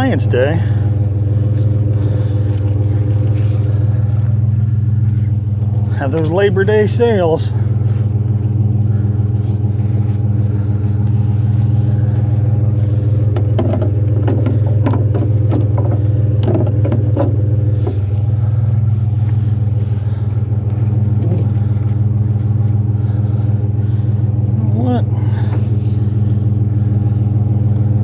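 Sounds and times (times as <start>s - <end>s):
vehicle engine running: 0.0s - 28.0s
short clattering rattles: 8.9s - 21.8s.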